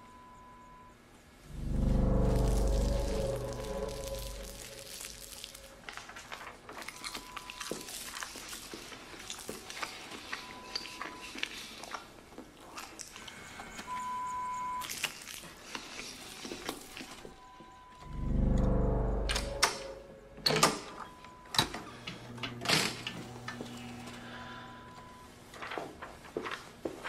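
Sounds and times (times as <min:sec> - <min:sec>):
short electronic beep: 0:00.1 - 0:05.8, 0:17.4 - 0:20.4.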